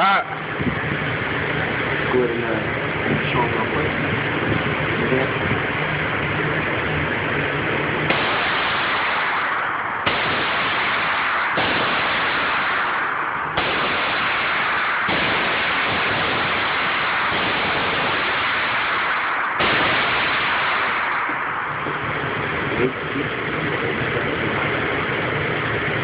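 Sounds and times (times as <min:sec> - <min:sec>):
constant loud hiss: 0:00.0 - 0:26.0
rifle shots: 0:08.1 - 0:22.2.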